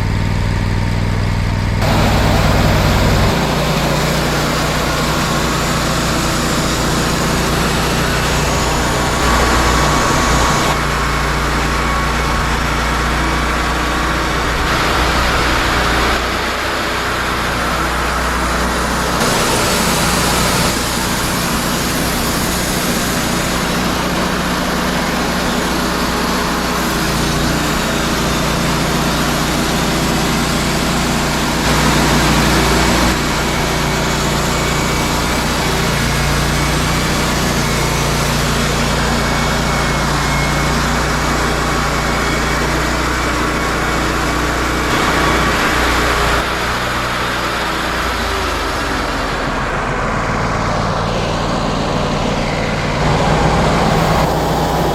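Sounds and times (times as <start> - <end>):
sawmill engine droning: 0.0 - 54.9
band blade cutting wood: 1.8 - 11.0.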